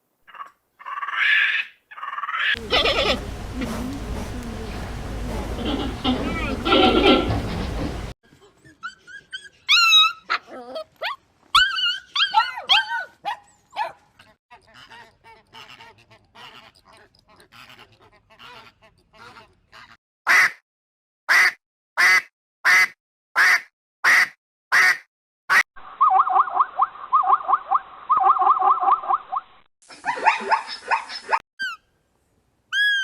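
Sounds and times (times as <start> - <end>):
dog yipping and whining: 8.6 - 14.0, 32.7 - 33.0.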